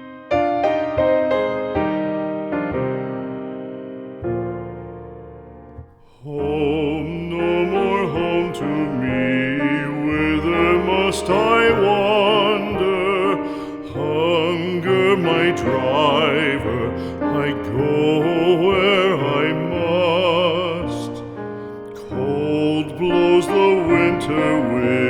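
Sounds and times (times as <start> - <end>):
piano chord: 0.0 - 25.0
person singing with vibrato: 6.0 - 25.0.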